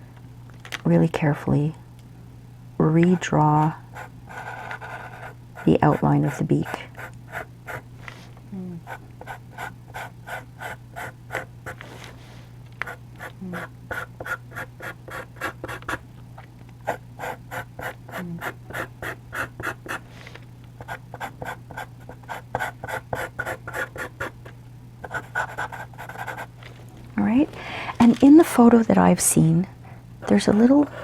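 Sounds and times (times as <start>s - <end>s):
steady low hum: 0.0s - 31.0s
pencil scratching on paper: 4.0s - 7.8s, 8.8s - 11.8s, 12.8s - 16.0s, 16.8s - 20.0s, 20.8s - 24.3s, 25.0s - 26.5s, 30.8s - 31.0s.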